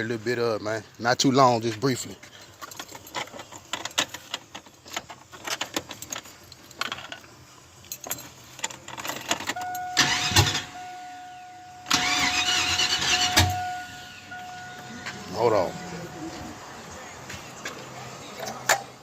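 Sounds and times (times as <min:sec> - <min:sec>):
dashboard warning tone: 0:09.6 - 0:17.3
starter cranking engine: 0:09.7 - 0:10.8, 0:11.9 - 0:13.8.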